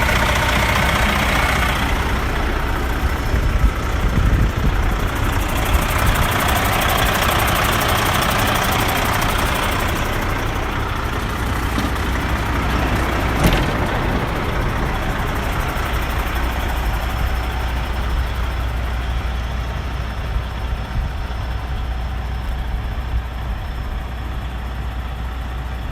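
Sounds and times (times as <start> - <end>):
diesel truck engine idling: 0.0 - 25.9.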